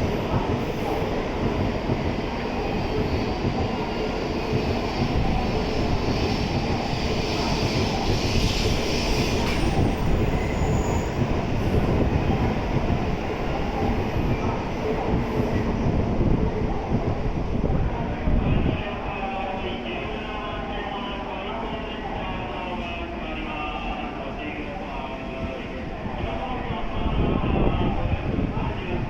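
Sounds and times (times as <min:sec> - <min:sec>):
train wheels rumbling on rails: 0:00.0 - 0:23.2
high wheel squeal: 0:08.0 - 0:11.2.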